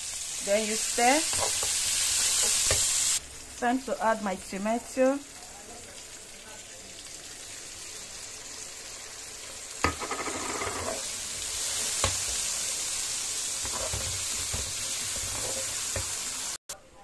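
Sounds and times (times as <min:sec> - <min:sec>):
food sizzling in oil: 0:00.0 - 0:16.6
spatula knocking on pan: 0:09.8 - 0:11.0
spatula scraping a pan: 0:09.9 - 0:12.7, 0:13.6 - 0:16.2.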